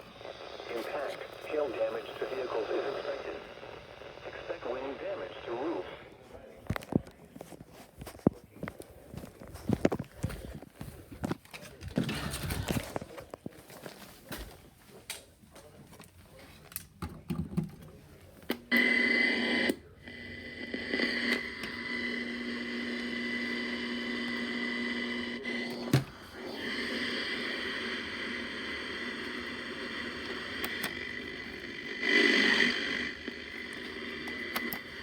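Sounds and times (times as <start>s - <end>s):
constant high whine: 0.0s - 7.4s, 18.1s - 35.0s
radio static hiss: 0.0s - 15.1s, 18.1s - 35.0s.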